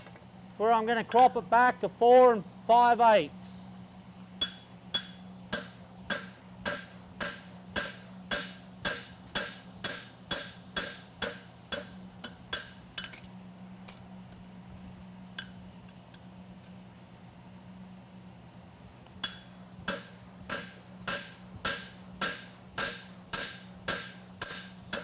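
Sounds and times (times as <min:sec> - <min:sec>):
hammer striking anvil: 0:04.4 - 0:13.2, 0:19.2 - 0:25.0.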